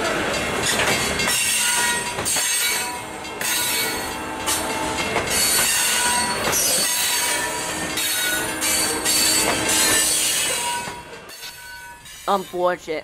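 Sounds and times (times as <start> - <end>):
freight train wheels rumbling: 0.0 - 13.0
high-pitched wheel squeals: 5.3 - 12.2.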